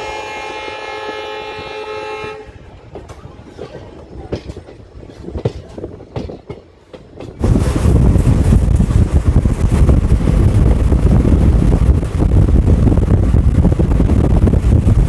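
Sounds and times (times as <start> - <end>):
locomotive horn chord: 0.0 - 2.6
wind buffeting microphone: 0.0 - 15.0
wheels clicking over rail joints: 2.6 - 10.7.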